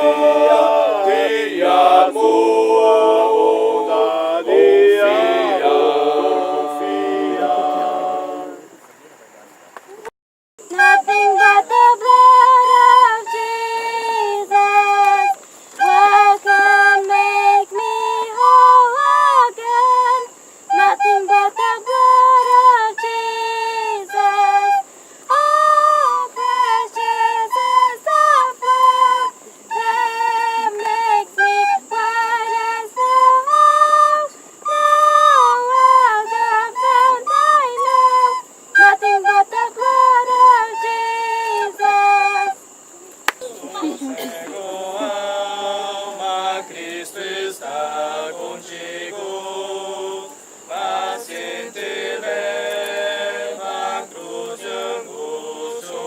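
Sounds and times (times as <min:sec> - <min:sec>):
high-pitched voices singing: 0:00.0 - 0:08.8, 0:10.6 - 0:56.0.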